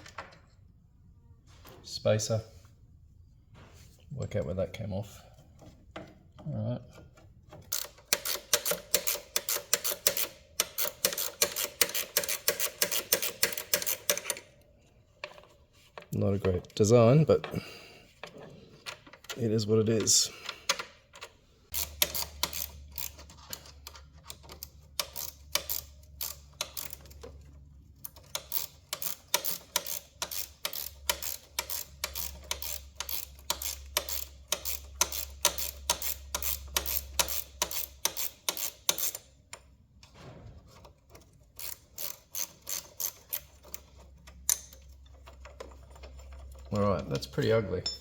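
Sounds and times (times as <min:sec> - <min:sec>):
ratchet wrench clicking: 0:07.6 - 0:14.5, 0:20.7 - 0:39.7, 0:41.5 - 0:47.3.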